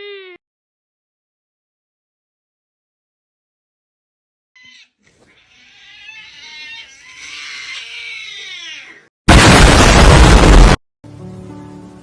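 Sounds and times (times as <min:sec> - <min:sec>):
cat mewing and yowling: 0:00.0 - 0:00.4, 0:04.6 - 0:09.1
extremely loud blast of noise: 0:09.3 - 0:10.8.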